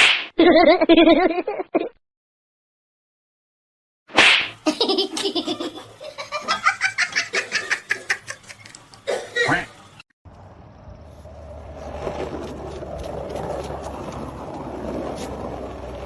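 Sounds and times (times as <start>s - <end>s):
person laughing in rapid bursts: 0.4s - 2.0s, 4.6s - 8.8s.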